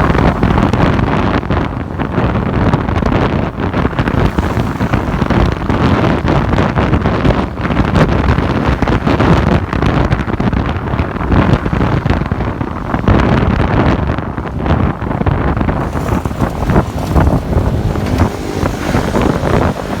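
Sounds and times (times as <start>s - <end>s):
road noise: 0.0s - 20.0s
wind buffeting microphone: 0.0s - 20.0s
motorbike engine running: 14.3s - 20.0s.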